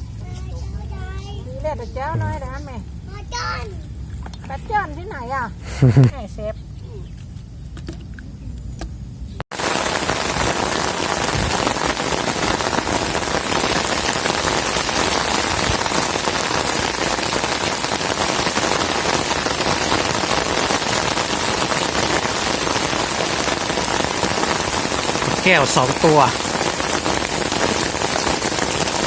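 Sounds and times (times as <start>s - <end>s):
heavy rain pouring: 9.5s - 29.0s.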